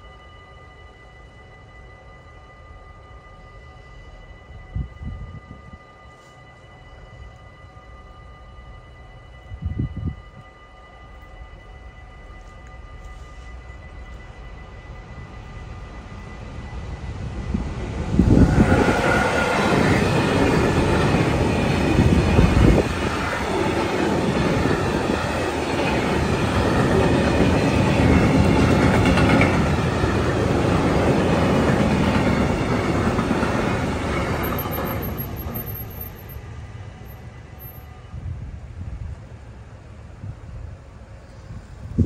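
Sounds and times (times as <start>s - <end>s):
locomotive passing: 8.8s - 42.0s.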